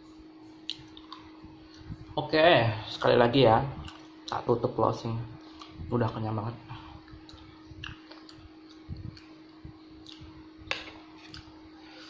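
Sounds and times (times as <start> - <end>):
low hum: 0.0 - 12.0
person chewing food: 0.6 - 2.0, 3.8 - 4.4, 5.5 - 5.8, 7.0 - 12.0.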